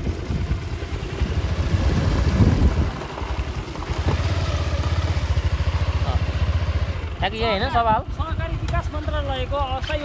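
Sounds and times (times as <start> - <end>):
wind noise on microphone: 0.0 - 4.8
motorcycle engine running: 0.0 - 10.0.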